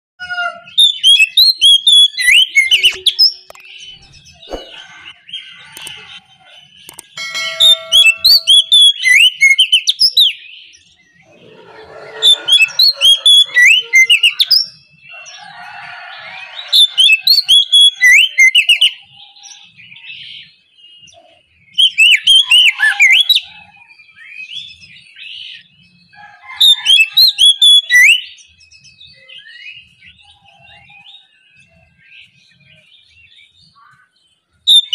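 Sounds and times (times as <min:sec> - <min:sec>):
bird singing whistled phrases: 0:21.8 - 0:23.5.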